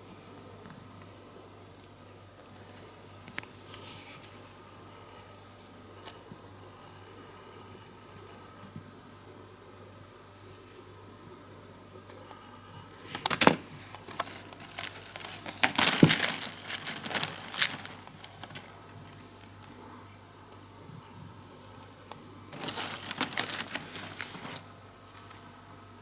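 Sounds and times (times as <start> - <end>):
packaging crinkling: 12.9 - 19.8, 22.5 - 25.5.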